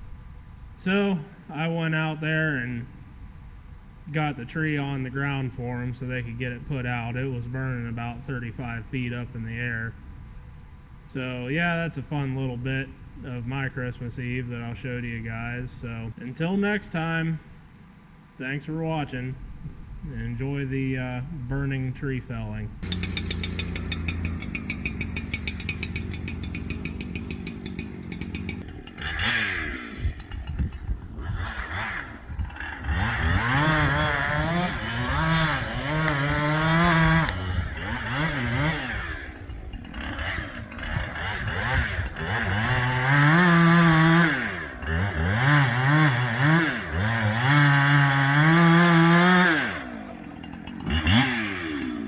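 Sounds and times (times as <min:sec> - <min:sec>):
chainsaw revving and idling: 0:22.8 - 0:52.0.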